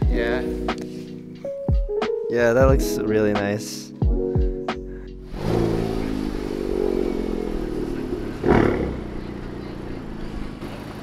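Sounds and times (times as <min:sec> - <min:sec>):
car engine running: 0:05.2 - 0:11.0.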